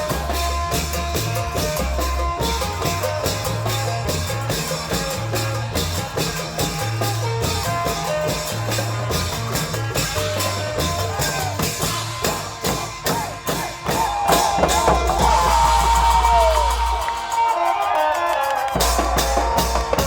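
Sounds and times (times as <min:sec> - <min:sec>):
steady drum beat: 0:00.0 - 0:20.0
repeating bass line: 0:13.9 - 0:17.4.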